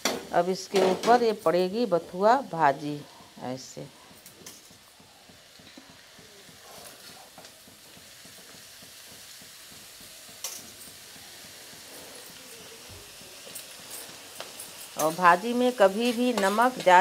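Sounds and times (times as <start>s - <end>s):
potatoes sizzling in oil: 0.0s - 17.0s
greens rustling into pan: 3.4s - 17.0s.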